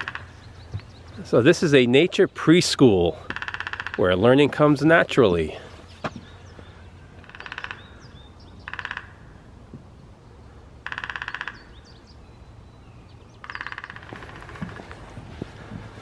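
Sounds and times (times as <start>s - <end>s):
bird harsh rattling bursts: 3.3s - 4.1s.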